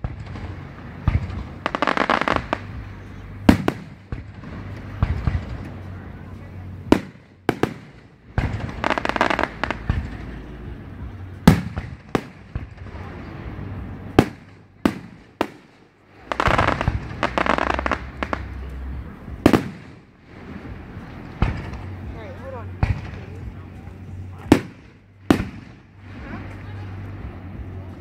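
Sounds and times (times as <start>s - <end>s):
firework shells bursting: 0.0s - 2.8s, 14.1s - 20.1s
firework crackling: 0.0s - 28.0s.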